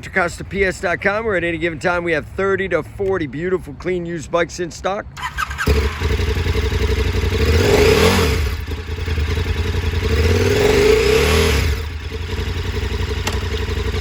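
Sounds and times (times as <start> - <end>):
motorcycle engine idling and revving: 5.2 - 14.0.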